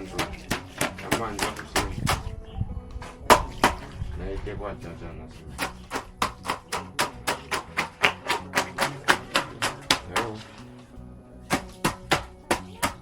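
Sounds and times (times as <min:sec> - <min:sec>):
hand tool striking blows: 0:00.0 - 0:02.3, 0:03.0 - 0:04.0, 0:05.5 - 0:10.7, 0:11.5 - 0:13.0.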